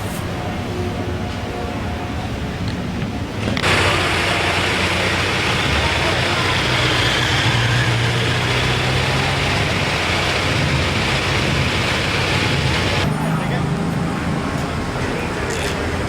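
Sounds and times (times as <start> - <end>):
car engine idling: 3.4 - 15.9.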